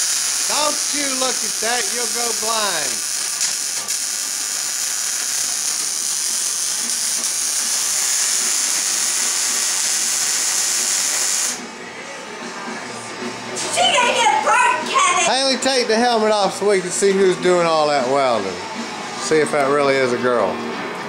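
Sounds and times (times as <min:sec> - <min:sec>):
welding arc crackling and hissing: 0:00.0 - 0:11.6.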